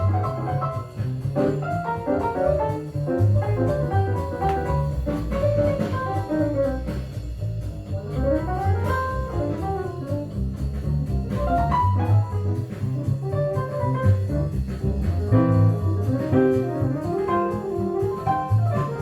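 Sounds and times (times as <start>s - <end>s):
jazz music over loudspeakers: 0.0s - 19.0s.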